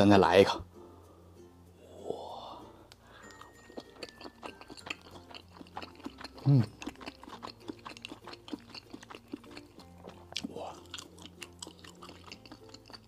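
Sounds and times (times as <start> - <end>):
person humming mm: 1.8 - 2.7, 6.4 - 6.8
wet chewing smacks and clicks: 3.2 - 13.0.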